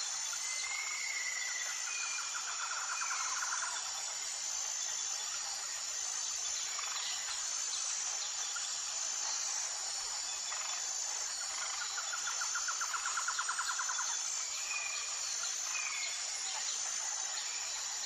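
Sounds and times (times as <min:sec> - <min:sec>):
constant hiss: 0:00.0 - 0:18.0
insects droning: 0:00.0 - 0:18.0.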